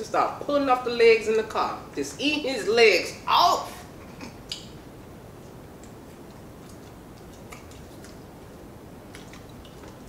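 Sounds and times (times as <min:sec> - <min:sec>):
steady low hiss: 0:00.0 - 0:10.0
people chewing fried food: 0:04.0 - 0:10.0.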